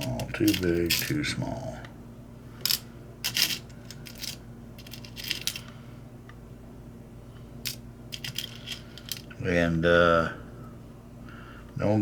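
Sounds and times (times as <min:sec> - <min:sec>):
metal drill bits clinking: 0:00.0 - 0:01.2, 0:02.7 - 0:05.6, 0:07.7 - 0:09.3
faint low hum: 0:00.0 - 0:12.0.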